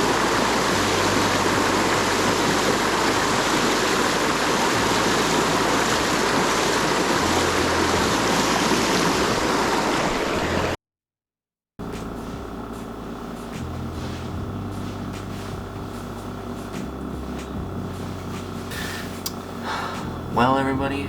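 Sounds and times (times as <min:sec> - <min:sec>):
water pouring over dam: 0:00.0 - 0:10.7.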